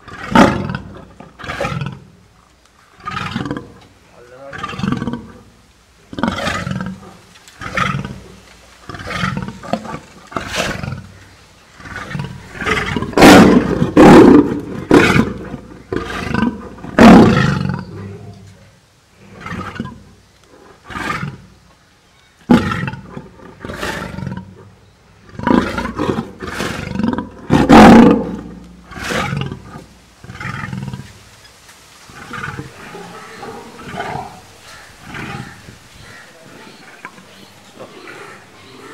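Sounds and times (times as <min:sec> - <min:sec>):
lion roaring: 0:00.0 - 0:02.0, 0:04.4 - 0:05.5, 0:11.8 - 0:18.5, 0:25.3 - 0:31.1, 0:32.1 - 0:38.9.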